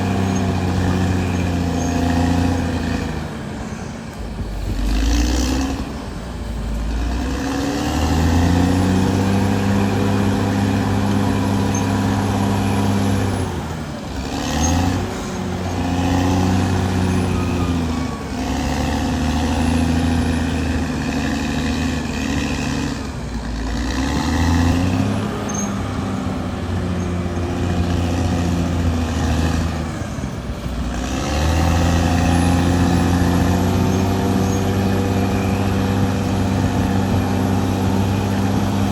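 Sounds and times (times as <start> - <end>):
bulldozer diesel engine working: 0.0 - 38.9.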